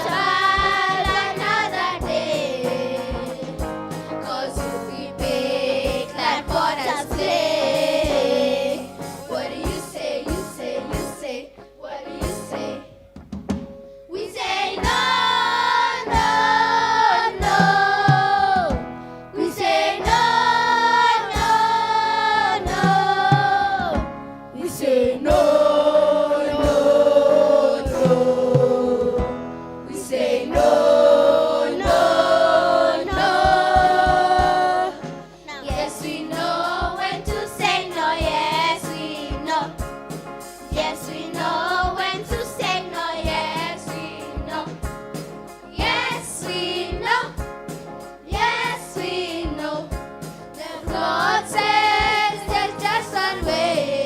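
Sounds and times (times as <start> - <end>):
choir singing gospel song: 0.0 - 12.9, 14.1 - 54.0
light steady beat: 30.5 - 54.0.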